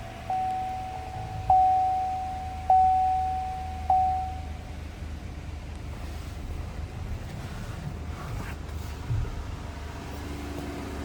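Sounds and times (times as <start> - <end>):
dashboard warning chime dinging: 0.0 - 5.0
car engine idling: 0.0 - 11.0.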